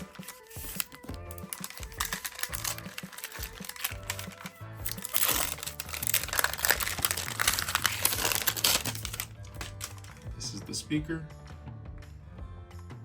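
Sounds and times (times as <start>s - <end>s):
packaging crinkling: 0.0s - 10.3s
background music: 0.0s - 13.0s.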